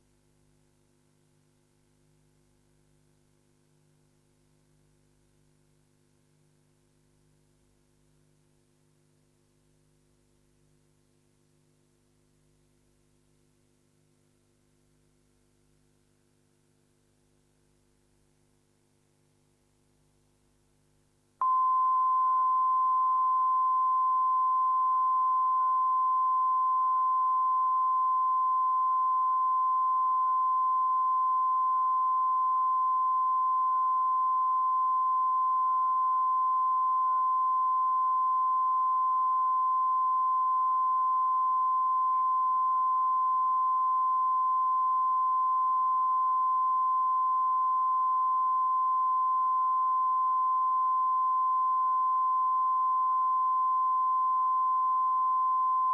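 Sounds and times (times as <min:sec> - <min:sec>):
steady pure test tone: 0:21.4 - 0:55.9.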